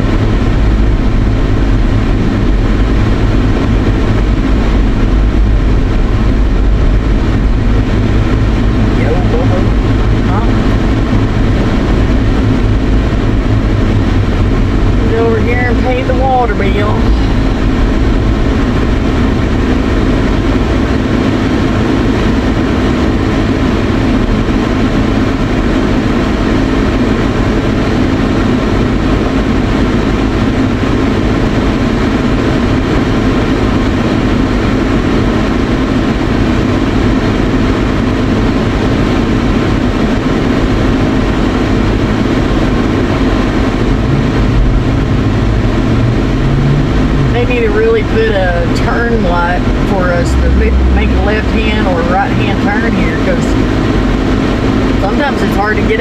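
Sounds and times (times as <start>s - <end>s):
truck cabin engine and road hum: 0.0s - 56.0s.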